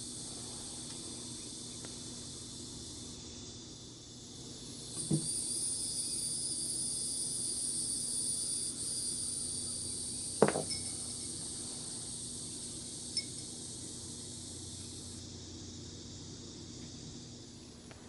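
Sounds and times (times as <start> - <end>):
steady high-pitched hiss: 0.0 - 18.0
glass bowl clinking: 10.4 - 11.0.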